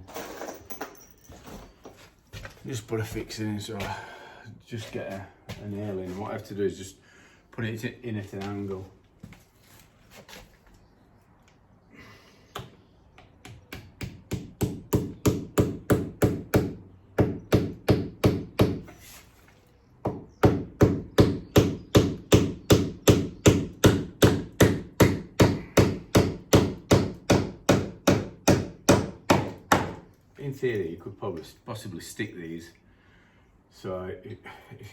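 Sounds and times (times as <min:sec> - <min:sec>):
hammer hitting nail: 0:13.4 - 0:18.9, 0:20.1 - 0:30.0.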